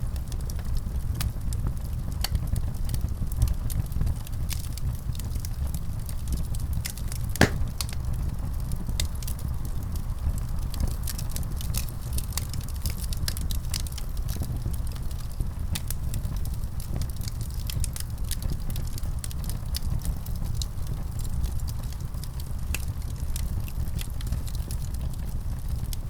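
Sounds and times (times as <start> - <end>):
fire crackling and popping: 7.4 - 8.0.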